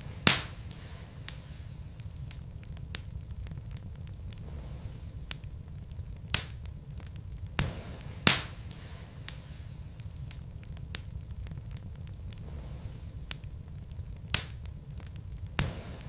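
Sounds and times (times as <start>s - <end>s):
fire crackles: 0.0s - 16.0s
logs burning in fireplace: 0.0s - 16.0s
sharp fire pops: 0.0s - 16.0s.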